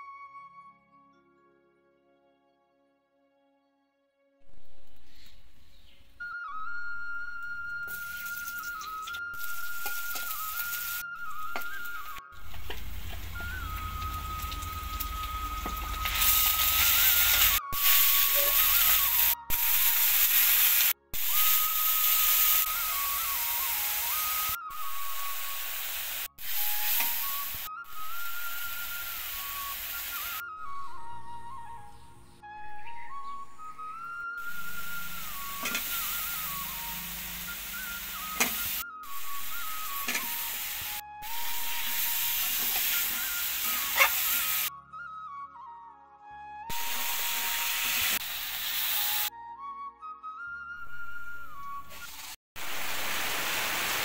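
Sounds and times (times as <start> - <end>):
thin background melody: 0.0 - 52.4
paste sizzling in hot oil: 7.9 - 30.4, 34.6 - 44.7, 46.7 - 49.3, 52.0 - 54.0
steel spatula scraping a pan: 42.3 - 44.7.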